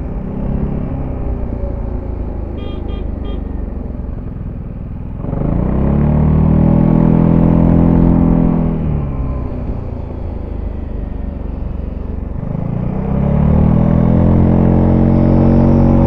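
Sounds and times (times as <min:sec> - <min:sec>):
scooter engine accelerating: 0:00.0 - 0:16.0
short high beeps: 0:02.6 - 0:03.5.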